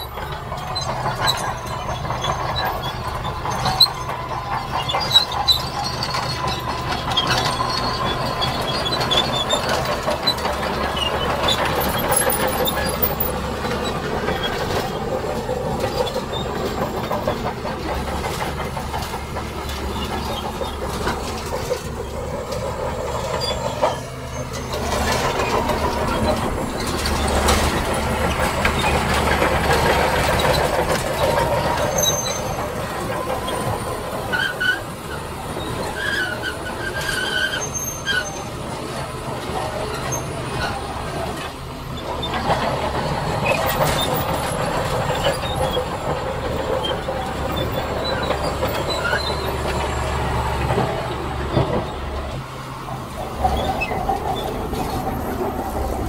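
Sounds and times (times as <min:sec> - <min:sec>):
crawler tracks clattering and squealing: 0:00.0 - 0:56.0
diesel engine running: 0:00.0 - 0:56.0.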